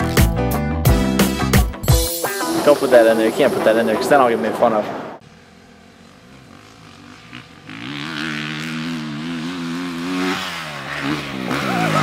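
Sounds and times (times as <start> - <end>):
dirt bike engine revving: 5.3 - 12.0.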